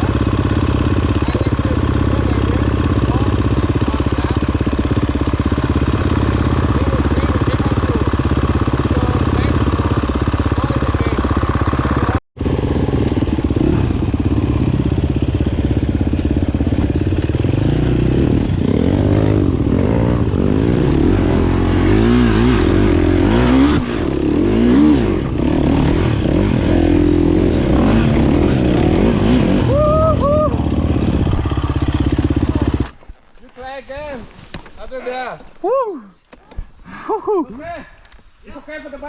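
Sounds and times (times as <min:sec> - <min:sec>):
dirt bike engines revving: 0:00.0 - 0:34.2.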